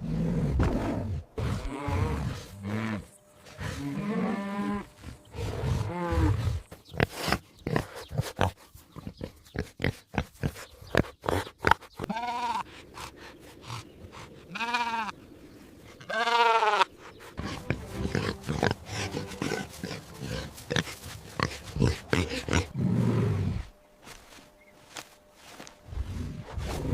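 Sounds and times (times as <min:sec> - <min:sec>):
livestock bleating: 0:01.7 - 0:06.5, 0:12.0 - 0:12.7, 0:14.5 - 0:15.2, 0:16.0 - 0:16.9.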